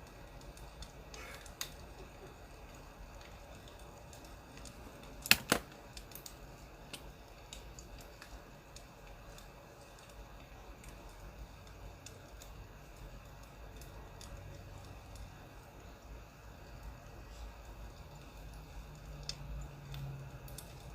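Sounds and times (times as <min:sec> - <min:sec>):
low steady hum: 0:00.0 - 0:20.9
wood fire crackling: 0:00.0 - 0:20.9.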